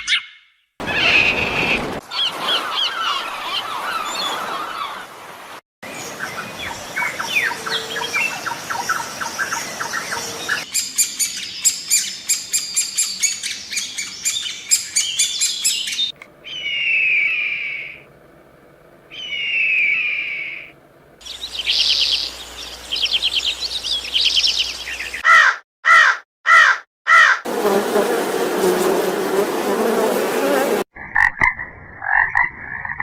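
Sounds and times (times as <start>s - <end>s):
sharp high bird chirps: 0.0s - 1.1s, 7.0s - 18.0s, 19.1s - 25.2s
bird screech: 0.0s - 5.0s, 16.5s - 18.0s, 19.2s - 20.7s, 25.2s - 27.4s
birds twittering and chirping: 0.0s - 5.2s, 5.8s - 25.5s.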